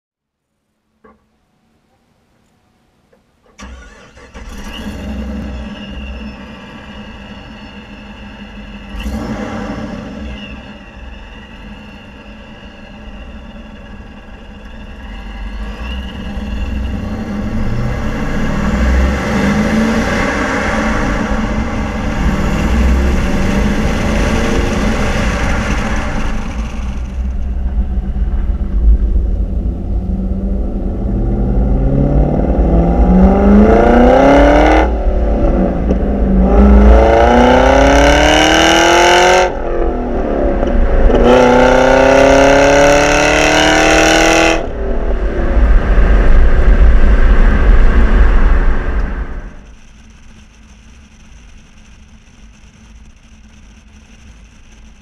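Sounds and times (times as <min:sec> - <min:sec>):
supercharger whine: 0:03.5 - 0:55.0
car engine accelerating: 0:03.6 - 0:55.0.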